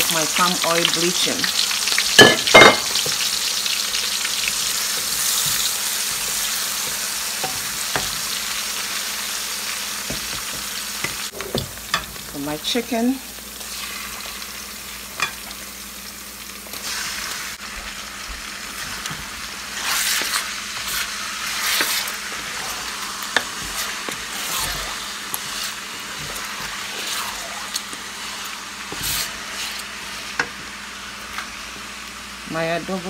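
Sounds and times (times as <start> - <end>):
chicken sizzling in hot oil: 0.0 - 33.0
wooden spatula stirring: 18.8 - 29.8.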